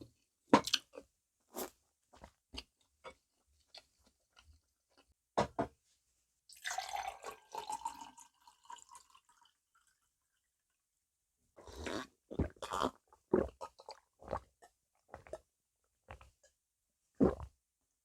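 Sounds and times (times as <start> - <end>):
wet liquid eating sound: 11.6 - 15.5, 16.1 - 16.6, 17.2 - 17.6.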